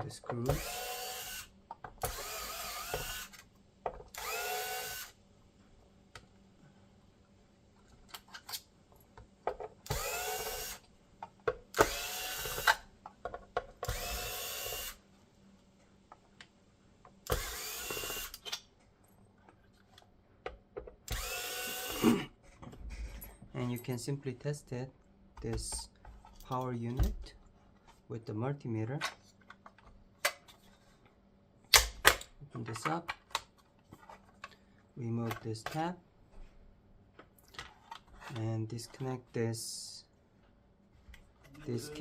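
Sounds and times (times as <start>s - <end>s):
electric screwdriver whirring: 0.4s - 3.4s, 4.1s - 5.2s, 9.9s - 10.8s, 11.8s - 12.8s, 13.8s - 15.0s, 17.3s - 18.4s, 21.1s - 22.0s.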